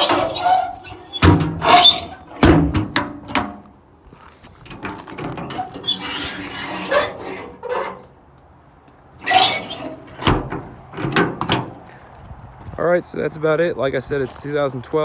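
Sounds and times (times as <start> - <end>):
metal clacks of latching: 0.0 - 3.7, 9.2 - 11.8
metal drawers sliding and rattling: 0.0 - 3.7, 4.6 - 8.2, 9.2 - 11.9.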